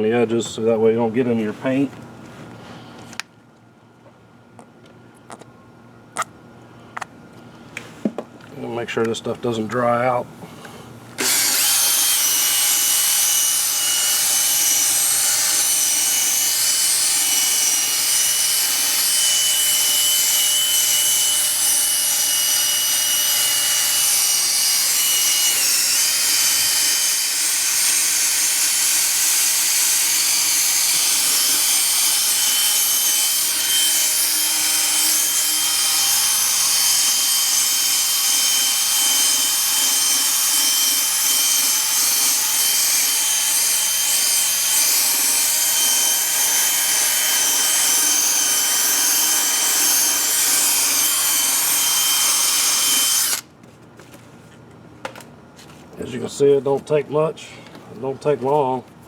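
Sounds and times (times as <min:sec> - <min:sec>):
electric drill high motor whine: 0:11.2 - 0:53.5.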